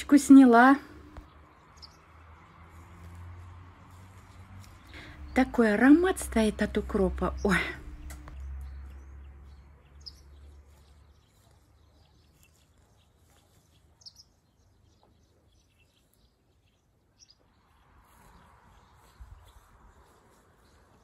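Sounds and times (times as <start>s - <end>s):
bird chirps: 1.0s - 2.4s, 7.3s - 20.8s.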